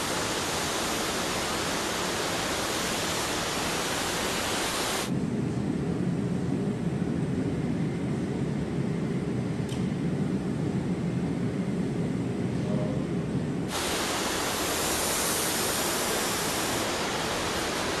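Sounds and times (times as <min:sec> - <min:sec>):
bright hiss: 0:00.0 - 0:05.1, 0:13.7 - 0:18.0.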